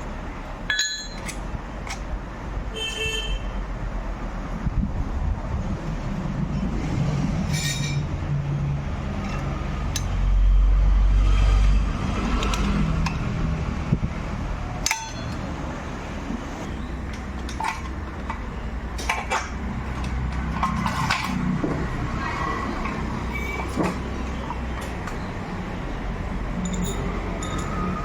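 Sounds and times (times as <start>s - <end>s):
metal tools clinking and knocking: 0.6s - 2.1s, 7.5s - 8.1s, 14.8s - 15.6s, 16.6s - 21.8s, 26.5s - 28.0s.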